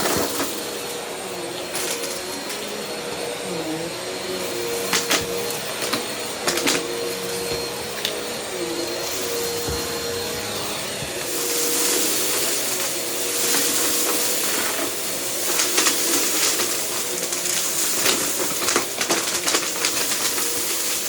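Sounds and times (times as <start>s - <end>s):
vacuum cleaner running: 0.0s - 21.0s
debris clicking in vacuum: 11.4s - 21.0s.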